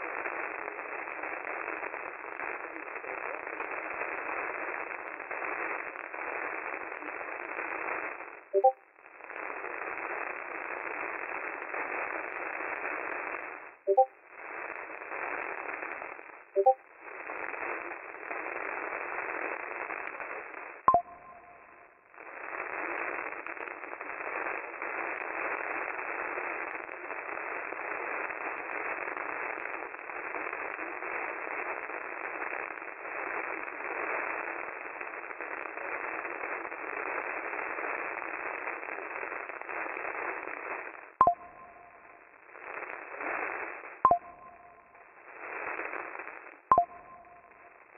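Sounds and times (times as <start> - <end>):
radio static hiss: 0.0 - 8.5
two-note blip: 8.6 - 8.8, 13.9 - 14.1, 16.6 - 16.8, 20.9 - 21.6, 41.2 - 41.9, 44.1 - 44.7, 46.7 - 47.4.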